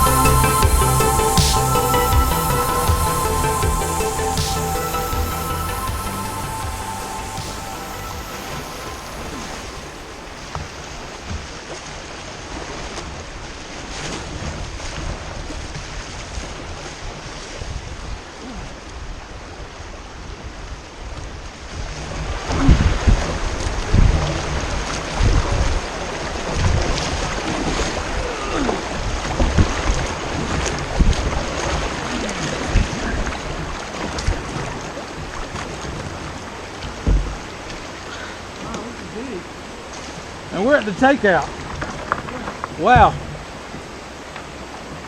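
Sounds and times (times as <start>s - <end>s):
river water rushing around kayak: 0.0s - 45.0s.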